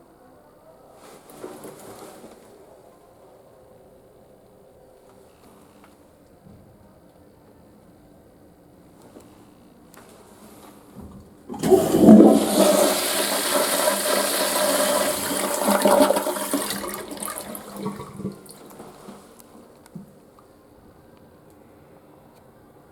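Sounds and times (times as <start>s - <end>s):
toilet flushing: 11.5s - 19.3s.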